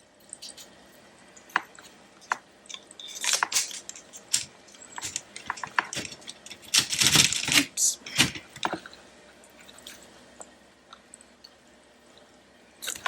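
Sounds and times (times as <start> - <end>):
paper rustling and crinkling: 3.1 - 8.6.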